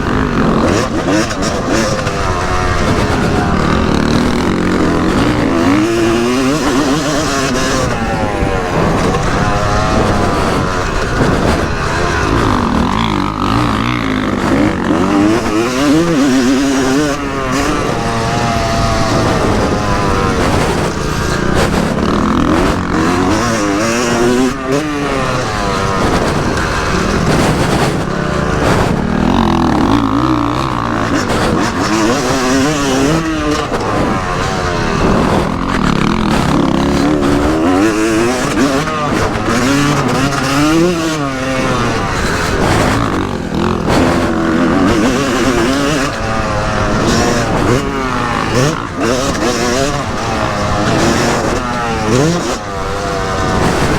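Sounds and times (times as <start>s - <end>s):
motocross engine revving: 0.0s - 53.9s.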